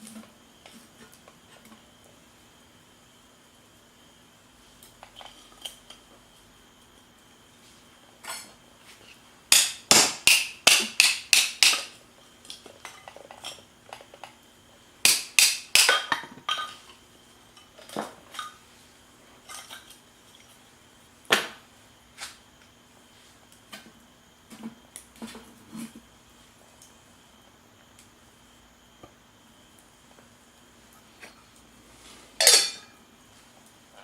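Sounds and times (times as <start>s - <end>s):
utensil clinking on dishes: 32.4s - 33.0s.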